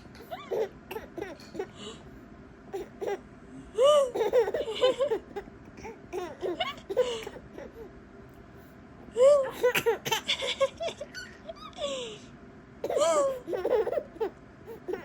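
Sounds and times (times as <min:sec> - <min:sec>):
baby giggling: 0:00.2 - 0:01.8, 0:03.9 - 0:07.9, 0:12.8 - 0:15.0.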